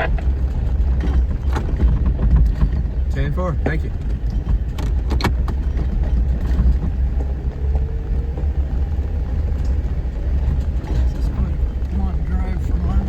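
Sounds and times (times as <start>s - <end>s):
knocks and rattles: 0.0s - 8.3s
vehicle engine and road rumble: 0.0s - 13.0s.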